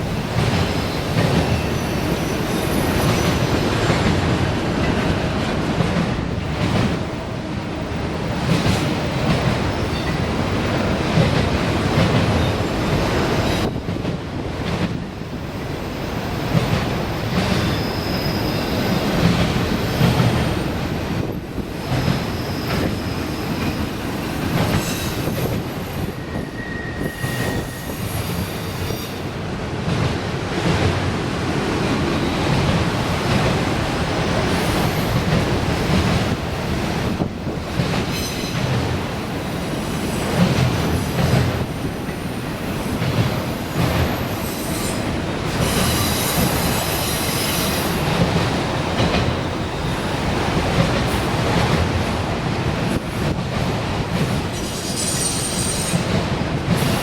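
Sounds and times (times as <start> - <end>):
freight train rumbling past: 0.0 - 57.0
faint wheel squeals: 25.1 - 29.0.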